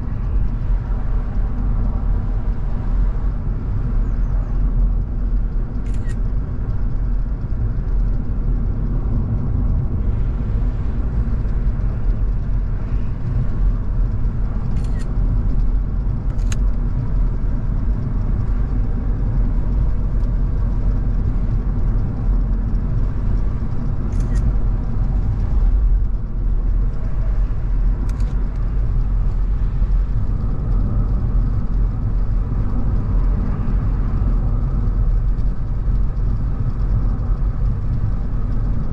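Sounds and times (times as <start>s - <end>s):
car engine running: 0.0s - 38.9s
tyre and road noise: 0.0s - 38.9s
sharp clicks: 5.8s - 6.3s, 14.7s - 15.1s, 16.3s - 16.7s, 24.1s - 24.5s, 28.0s - 28.6s.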